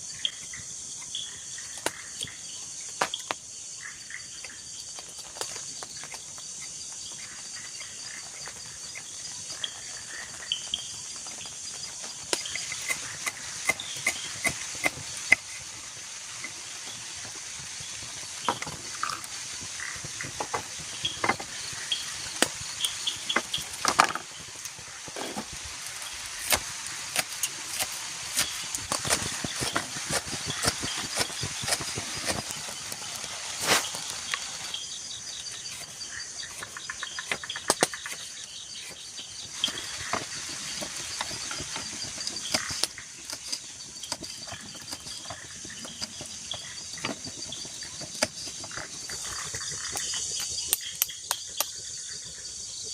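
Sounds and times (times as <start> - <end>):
night insects chirring: 0.0 - 52.9
wood snapping and cracking: 23.4 - 34.5, 36.6 - 39.0.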